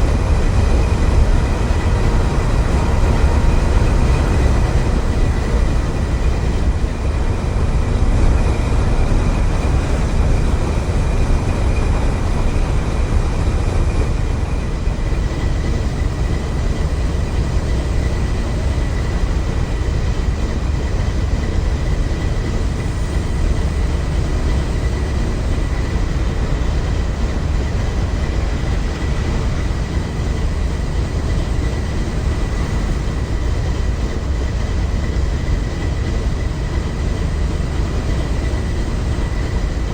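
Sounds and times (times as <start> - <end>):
train rumbling past: 0.0 - 39.9.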